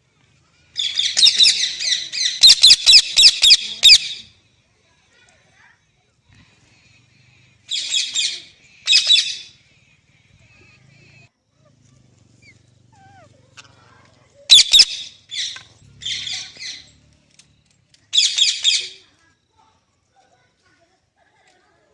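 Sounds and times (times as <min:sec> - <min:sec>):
parrot squawking: 0:00.8 - 0:04.3, 0:07.7 - 0:09.5, 0:14.5 - 0:16.9.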